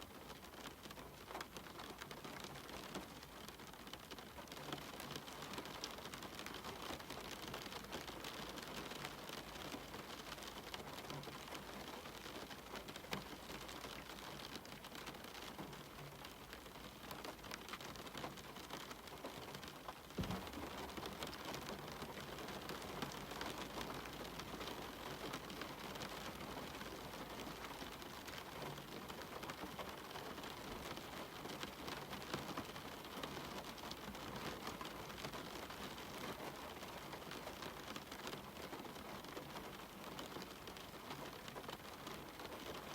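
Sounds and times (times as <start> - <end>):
rain falling: 0.0 - 42.9
knock: 20.2 - 20.5.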